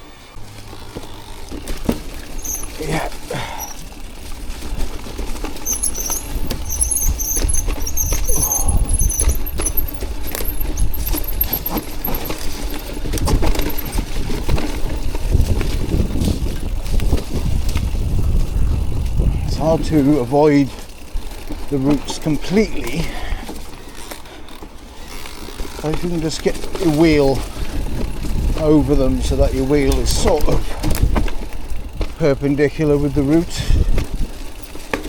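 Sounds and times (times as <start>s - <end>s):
disc brakes squealing: 0.0s - 4.2s, 5.5s - 14.2s
bike clattering over roots: 0.1s - 35.0s
wind rumbling on microphone: 2.2s - 23.6s, 26.0s - 34.7s.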